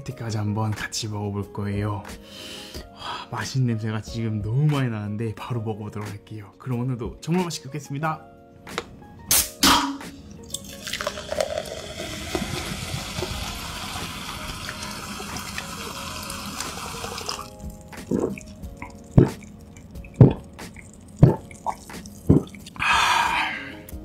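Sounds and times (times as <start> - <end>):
cola fizzing in a glass: 10.4 - 22.8
pouring into a glass mug: 10.4 - 22.8
loud gulps: 18.0 - 20.6, 21.2 - 23.2.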